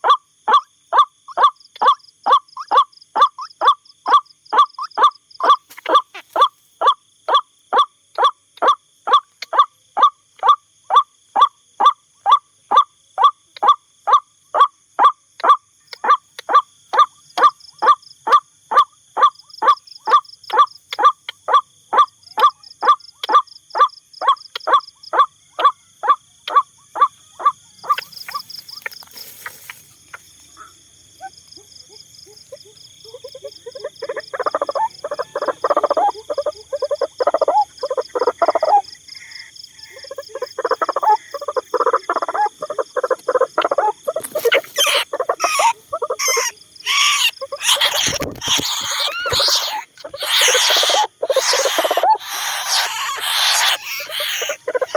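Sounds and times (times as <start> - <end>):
waterhen harsh repeated calls: 0.0 - 12.0, 15.4 - 29.8, 32.3 - 54.9
low croaking calls: 0.0 - 54.9
high insect trill: 19.4 - 54.9.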